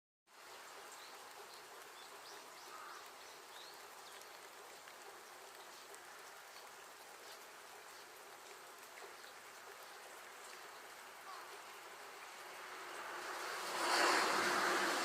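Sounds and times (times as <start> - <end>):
water hissing: 12.4 - 15.0.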